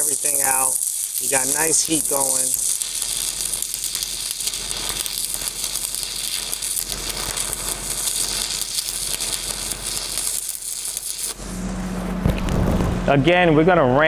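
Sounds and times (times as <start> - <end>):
welding arc crackling: 0.0 - 13.2.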